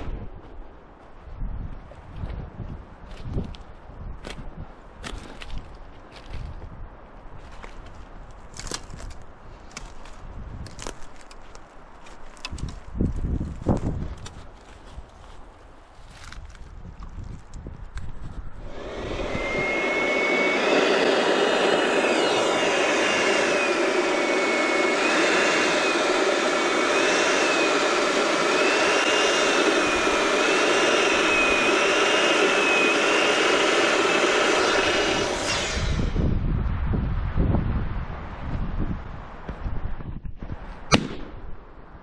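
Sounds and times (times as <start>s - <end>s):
electric balloon inflator running: 18.6s - 36.3s.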